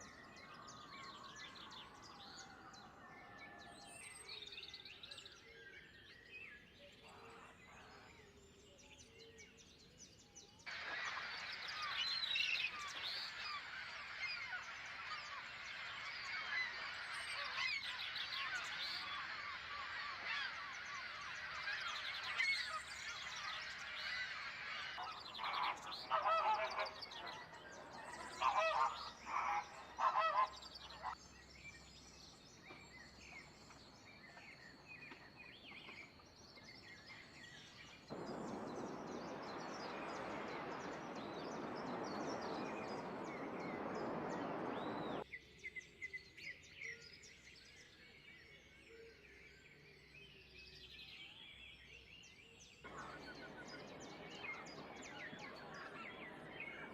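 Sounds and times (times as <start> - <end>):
chorus of birds chirping: 0.0 - 56.9
harsh bird calls: 10.7 - 31.8, 37.9 - 45.2, 52.9 - 56.9.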